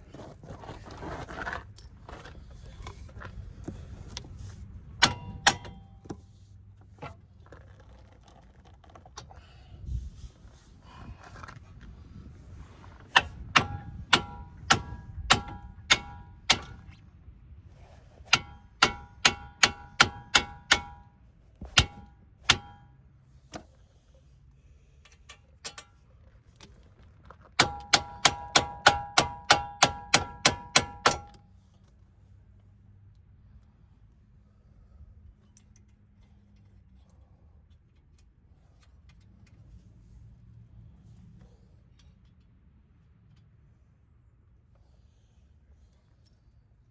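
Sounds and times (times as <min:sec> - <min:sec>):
metal striking metal: 0:05.0 - 0:06.0, 0:13.2 - 0:16.9, 0:18.3 - 0:23.0.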